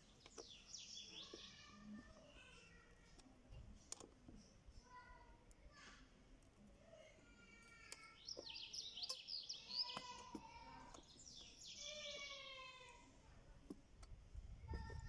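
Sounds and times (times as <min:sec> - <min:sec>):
birds chirping: 0:00.0 - 0:02.6, 0:07.8 - 0:13.0.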